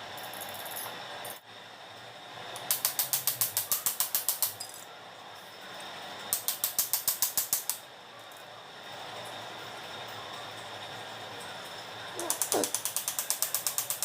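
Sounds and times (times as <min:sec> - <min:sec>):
ratchet wrench clicking: 0:02.6 - 0:04.8, 0:06.3 - 0:07.8, 0:12.2 - 0:14.0.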